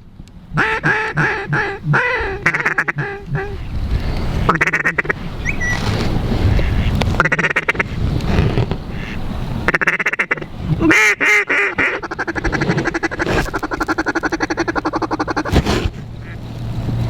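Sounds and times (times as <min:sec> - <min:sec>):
duck call feeding chuckle: 0:00.6 - 0:03.7, 0:09.0 - 0:15.6
duck call quacks: 0:00.6 - 0:03.7, 0:04.5 - 0:05.2, 0:06.6 - 0:08.0, 0:08.9 - 0:15.6.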